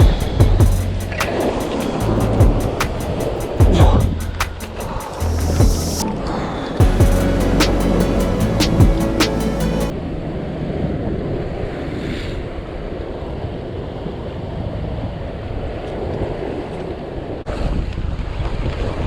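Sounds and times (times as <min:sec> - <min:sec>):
music: 0:00.0 - 0:06.0, 0:06.8 - 0:09.9
sea waves: 0:01.1 - 0:03.6.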